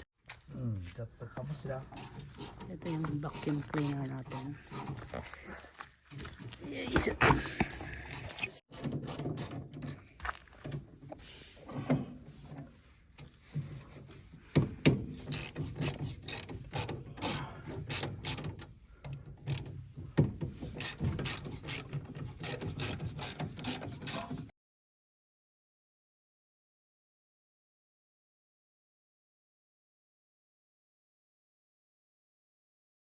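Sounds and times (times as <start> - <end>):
clicks knocks and scraping: 1.4 - 5.4, 6.1 - 11.2, 11.8 - 24.5.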